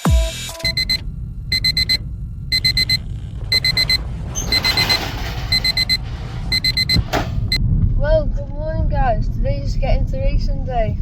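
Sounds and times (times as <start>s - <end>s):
alarm clock beeping: 0.6s - 7.6s.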